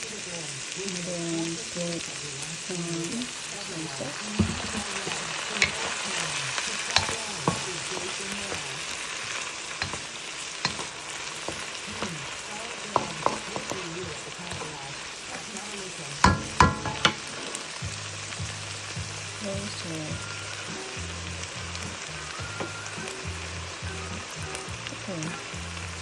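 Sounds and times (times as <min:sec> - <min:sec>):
food sizzling in a pan: 0:00.0 - 0:26.0
spatula knocking against pan: 0:04.4 - 0:05.8, 0:07.0 - 0:08.4, 0:09.8 - 0:10.1, 0:10.7 - 0:12.2, 0:12.9 - 0:14.7, 0:16.2 - 0:17.4.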